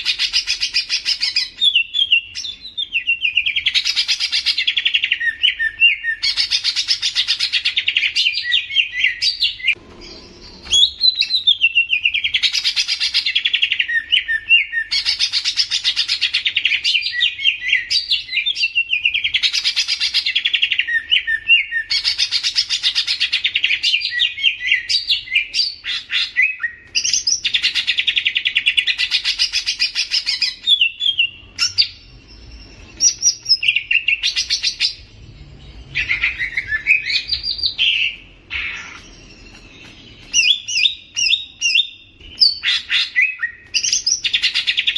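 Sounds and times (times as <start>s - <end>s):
soft bird chirps: 0.0s - 44.9s
songbird trilling: 35.7s - 44.9s.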